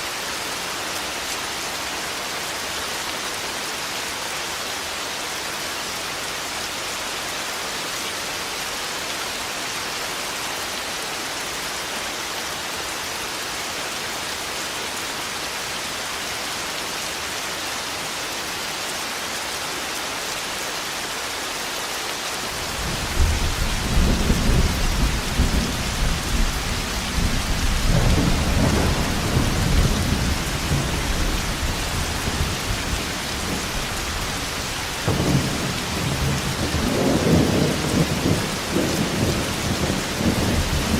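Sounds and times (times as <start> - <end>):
rain hissing: 20.3 - 40.9
low rumble of thunder: 22.8 - 40.9.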